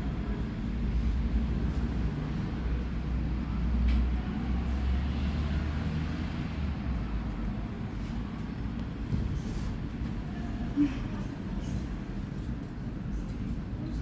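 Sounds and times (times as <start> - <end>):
tram rumbling: 0.0 - 14.0.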